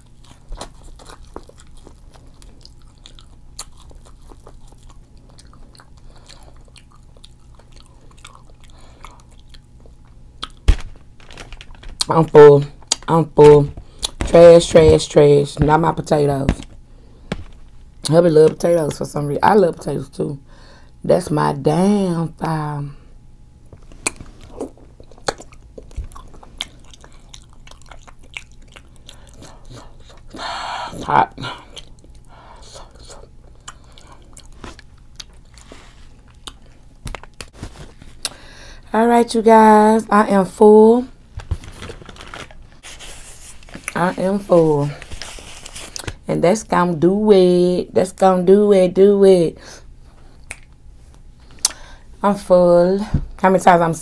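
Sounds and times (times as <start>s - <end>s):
person chewing food: 0.0s - 12.2s, 23.8s - 38.4s, 50.3s - 50.8s.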